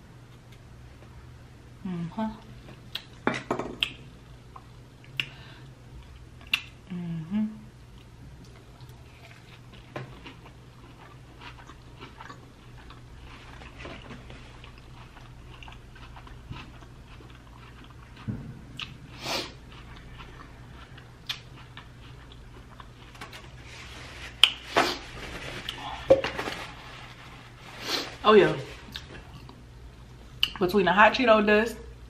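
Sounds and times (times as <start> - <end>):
wet chewing with clicks: 6.0 - 6.8, 7.9 - 19.0, 19.7 - 23.1.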